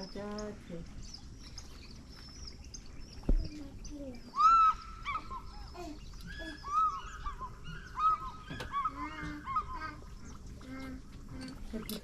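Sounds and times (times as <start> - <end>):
bird honking calls: 4.3 - 11.6.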